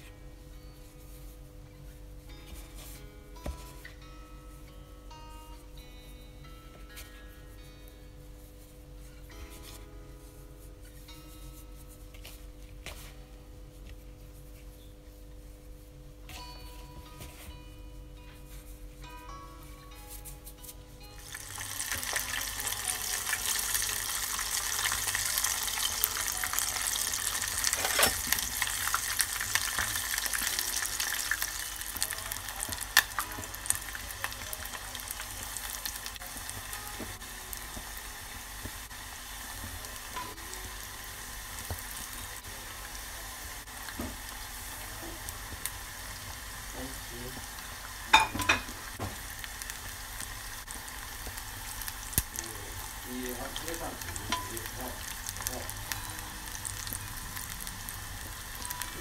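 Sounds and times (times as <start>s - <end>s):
chicken deep-frying in hot oil: 21.2s - 59.0s.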